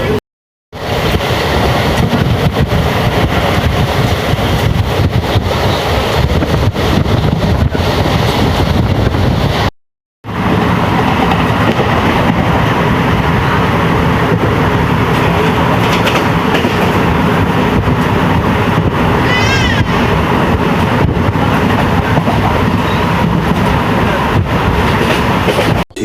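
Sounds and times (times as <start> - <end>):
moving train rushing: 0.8 - 9.7, 10.3 - 26.0
wheels clattering on rails: 10.5 - 12.7, 14.2 - 25.8.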